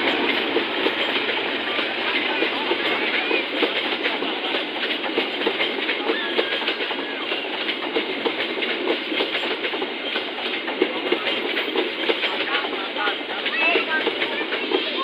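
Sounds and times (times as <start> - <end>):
train wheels clattering on rails: 0.0 - 15.0.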